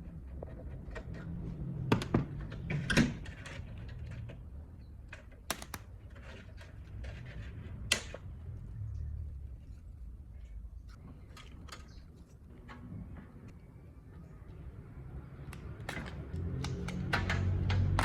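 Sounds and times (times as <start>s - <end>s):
tools knocking and clicking: 5.1s - 6.4s, 15.6s - 18.0s.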